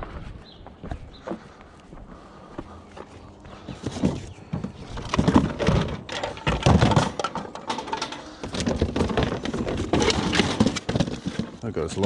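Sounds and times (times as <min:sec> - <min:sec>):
scrap metal clanking and thudding: 0:03.6 - 0:11.6.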